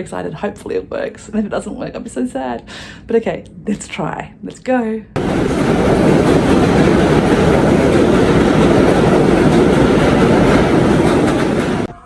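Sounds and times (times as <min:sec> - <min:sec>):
subway train running: 0:05.2 - 0:12.0.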